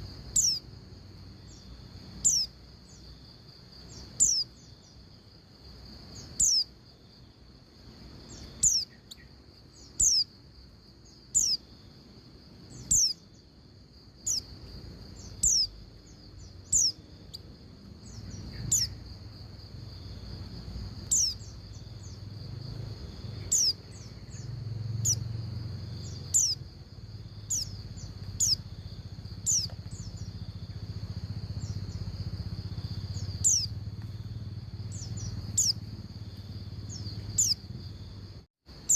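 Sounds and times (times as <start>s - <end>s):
bird calling high chips: 0.4s - 0.6s, 2.2s - 2.5s, 6.2s - 6.7s, 8.3s - 10.3s, 11.4s - 11.6s, 12.8s - 13.3s, 15.2s - 15.8s, 16.6s - 17.4s, 21.0s - 22.2s, 23.4s - 25.2s, 26.1s - 26.6s, 29.5s - 30.2s, 33.1s - 33.7s, 34.9s - 35.8s.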